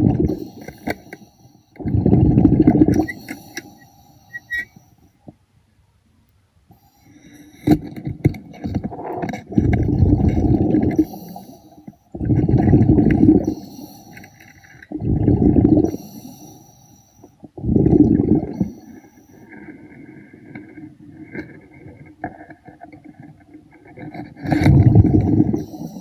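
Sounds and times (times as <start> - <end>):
regulator inhale hiss: 0.3 - 1.8, 3.0 - 5.2, 6.7 - 7.8, 10.9 - 12.1, 13.4 - 14.9, 15.8 - 17.4, 18.5 - 20.5, 25.3 - 26.0
diver exhaling bubbles: 1.8 - 3.6, 8.9 - 11.5, 12.2 - 14.0, 14.8 - 16.0, 17.6 - 18.7, 24.4 - 26.0.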